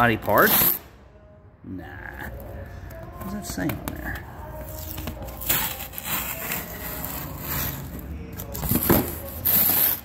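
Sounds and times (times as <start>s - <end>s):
wrapping rustling and scraping: 4.6s - 10.0s.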